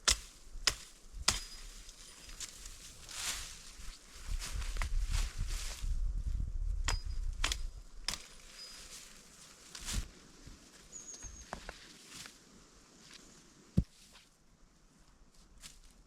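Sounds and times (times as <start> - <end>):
faint high chirp: 8.4 - 9.0, 10.9 - 11.7.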